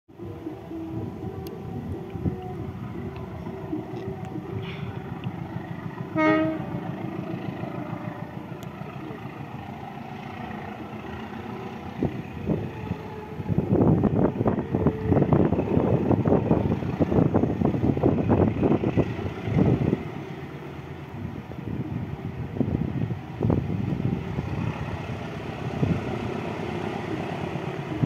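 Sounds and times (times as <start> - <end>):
train engine rumble: 0.1 - 28.0
train clattering past: 1.0 - 21.2, 23.0 - 28.0
train horn blast: 6.0 - 7.2.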